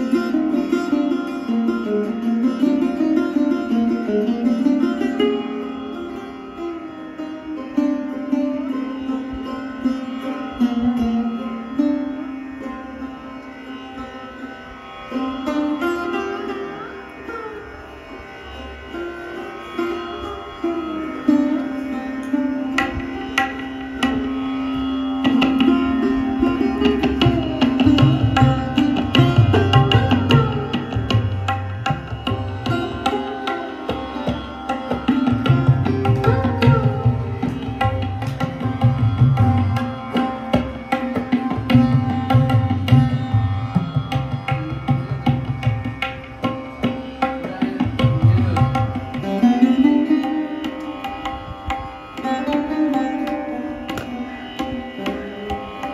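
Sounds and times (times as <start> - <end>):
sarod melody: 0.0 - 55.9
tabla drum strokes: 21.5 - 55.9.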